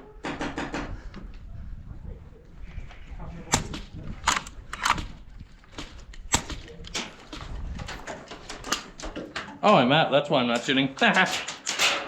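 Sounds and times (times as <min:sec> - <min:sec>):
airsoft gun shots: 0:03.5 - 0:05.1, 0:05.8 - 0:06.7.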